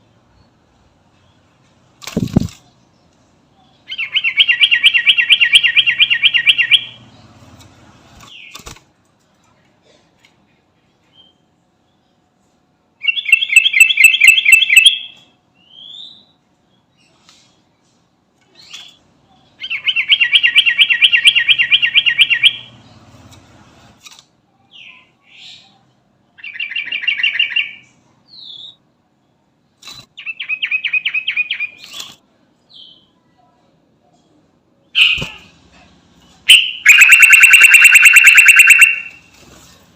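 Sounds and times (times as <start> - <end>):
bird trilling song: 3.6 - 7.3, 13.0 - 16.4, 19.6 - 23.0, 26.4 - 28.8, 30.2 - 33.2, 36.5 - 39.2.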